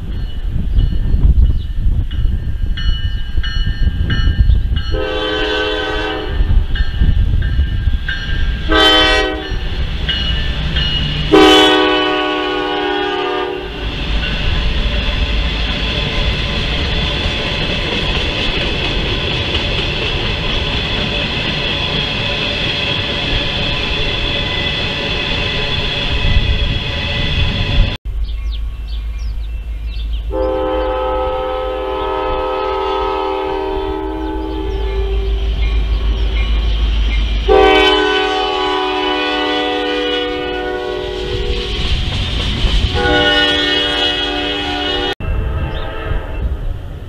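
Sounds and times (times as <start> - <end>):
train wheels rattling on rails: 0.0 - 45.8
locomotive horn blasts: 4.9 - 6.6, 8.7 - 9.6, 11.3 - 13.8, 30.3 - 35.5, 37.5 - 41.7, 42.9 - 46.5.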